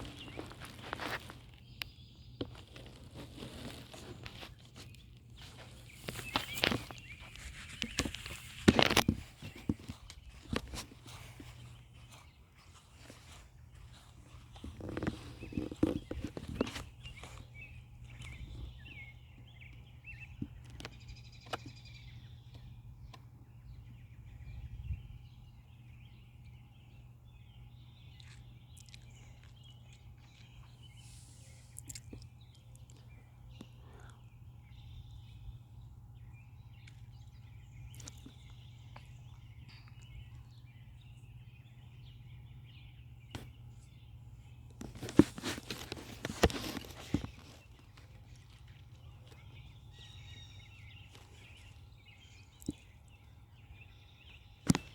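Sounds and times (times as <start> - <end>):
small birds chirping: 0.0 - 54.9
loud rustling and crackling: 2.5 - 17.5, 44.8 - 49.0
low steady rumble: 47.3 - 54.6.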